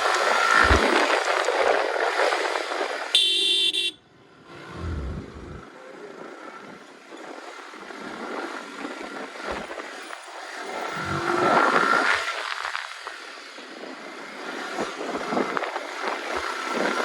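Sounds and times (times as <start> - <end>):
passing traffic: 0.0 - 17.0
wind and road noise: 0.0 - 17.0
short loud beep: 3.2 - 4.0.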